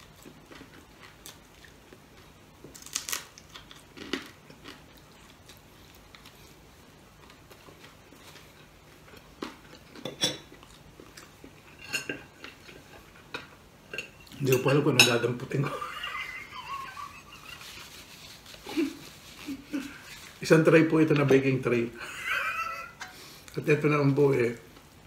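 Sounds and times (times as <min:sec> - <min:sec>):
chewing crispy chicken: 0:00.0 - 0:13.6
crisp crunches: 0:02.6 - 0:06.5.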